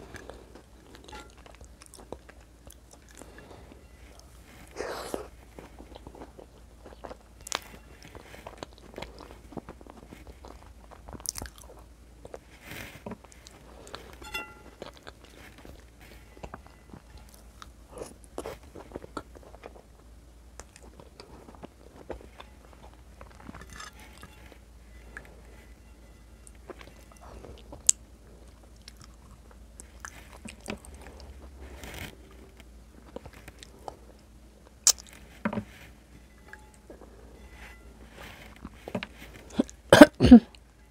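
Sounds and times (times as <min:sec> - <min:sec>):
person chewing food: 0:00.0 - 0:25.7, 0:26.4 - 0:35.7.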